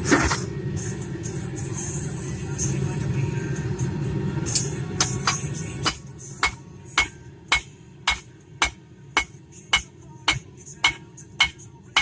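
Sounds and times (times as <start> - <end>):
hammer striking spike on anvil: 4.5 - 12.0.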